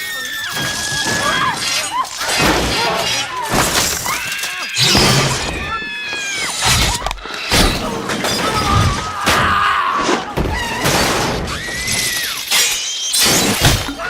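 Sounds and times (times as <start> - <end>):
glass shattering: 0.0 - 5.7, 10.7 - 14.0
crashes: 0.0 - 5.8
high screeching: 0.0 - 10.2, 10.8 - 14.0.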